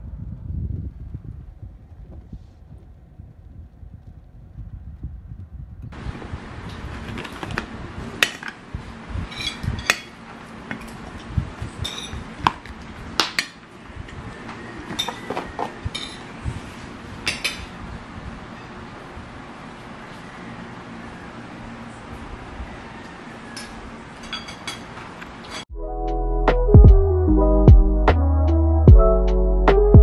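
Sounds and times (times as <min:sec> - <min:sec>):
dishes and cutlery clinking: 0:11.8 - 0:12.2, 0:14.9 - 0:16.3, 0:23.6 - 0:25.7.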